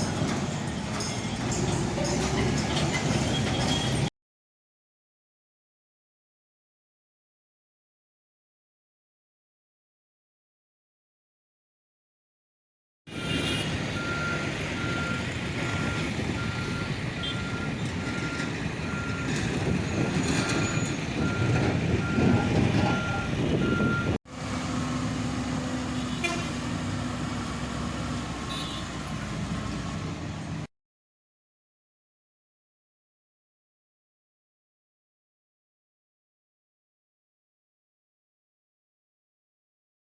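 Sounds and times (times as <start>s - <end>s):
reversing alarm beeping: 13.1s - 24.2s.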